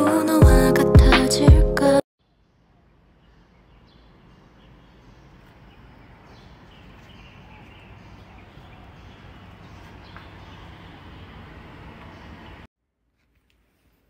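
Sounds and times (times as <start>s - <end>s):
birds chirping: 2.2s - 12.7s.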